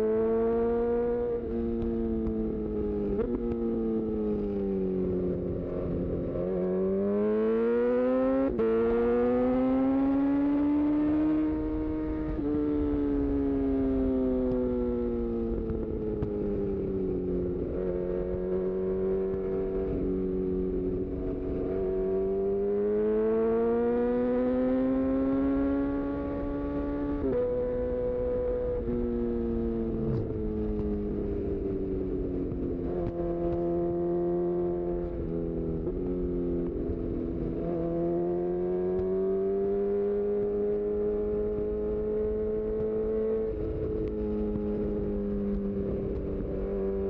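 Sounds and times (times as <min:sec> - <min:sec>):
motorcycle engine accelerating: 0:00.0 - 0:47.0.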